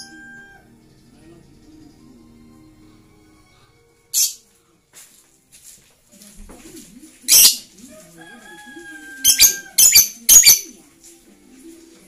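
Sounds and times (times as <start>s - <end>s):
lovebird shrill chirps: 4.1s - 4.4s, 7.3s - 7.6s, 9.2s - 10.6s.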